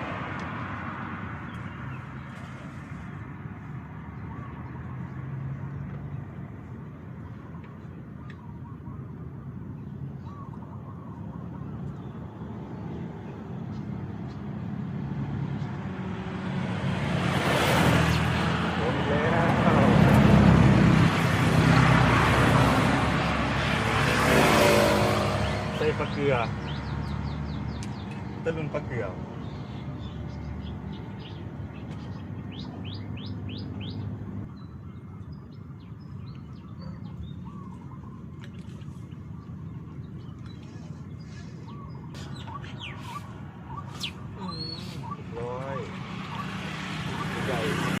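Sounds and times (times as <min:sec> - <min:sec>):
birds chirping: 0:00.0 - 0:48.0
sharp bird calls: 0:07.2 - 0:14.6, 0:23.2 - 0:48.0.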